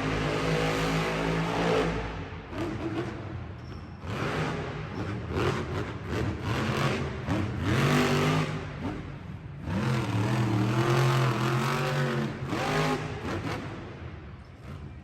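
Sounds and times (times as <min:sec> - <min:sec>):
truck engine revving hard: 0:04.1 - 0:09.0, 0:09.6 - 0:14.0.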